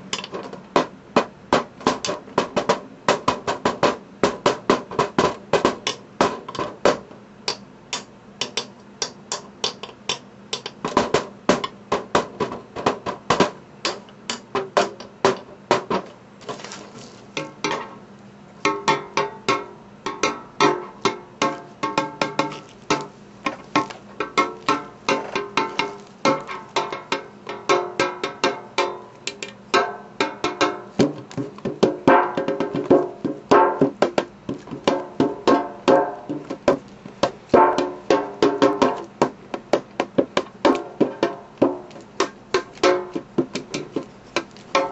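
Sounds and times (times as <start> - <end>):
sharp taps on metal pan: 18.7 - 23.1.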